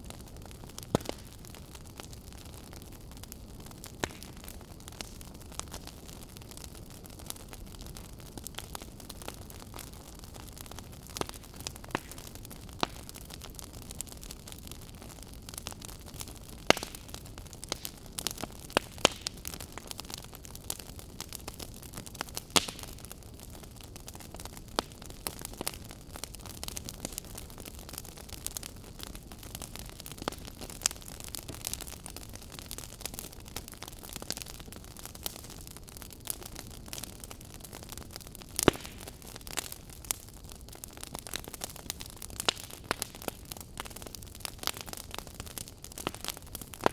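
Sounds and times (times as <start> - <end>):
firewood crackling and popping: 0.0 - 46.9.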